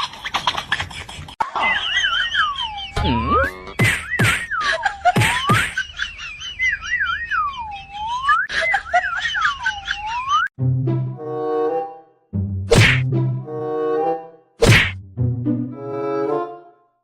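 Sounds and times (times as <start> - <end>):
wavering swooping whistling: 6.5 - 8.6.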